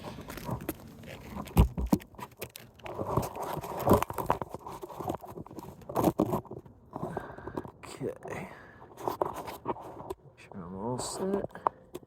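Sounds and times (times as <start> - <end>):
scrapes and rustles on shingle roof: 0.0 - 12.0.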